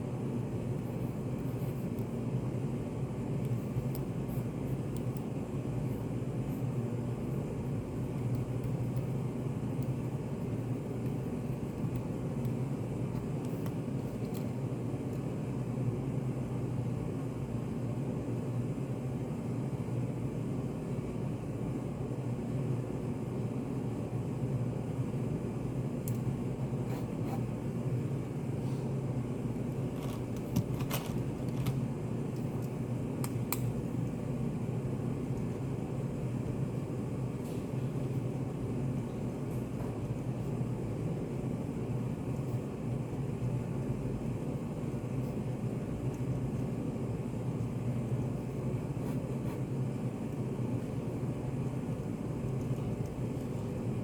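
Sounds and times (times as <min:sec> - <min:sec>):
low room hum: 0:00.0 - 0:54.0.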